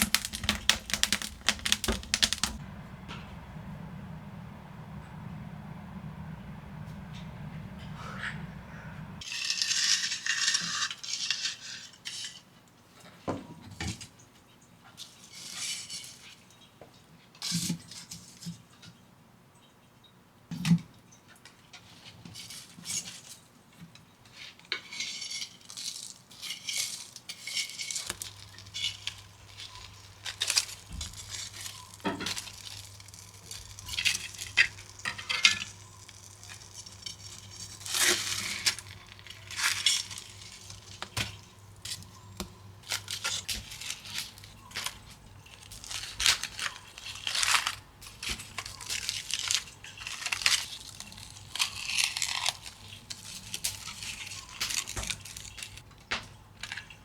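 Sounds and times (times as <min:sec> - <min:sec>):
low steady hum: 0:00.0 - 0:09.2, 0:28.1 - 0:49.0.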